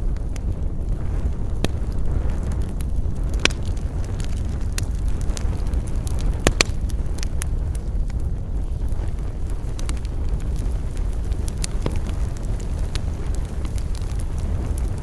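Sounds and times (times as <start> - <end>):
campfire crackling and popping: 0.0 - 15.0
low fire rumble: 0.0 - 15.0.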